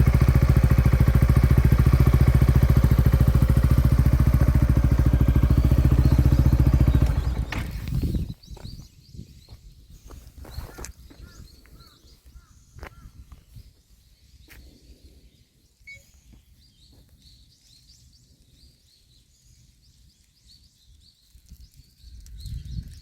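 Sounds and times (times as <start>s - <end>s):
low outdoor rumble: 0.0s - 8.4s
small birds chirping: 0.0s - 23.0s.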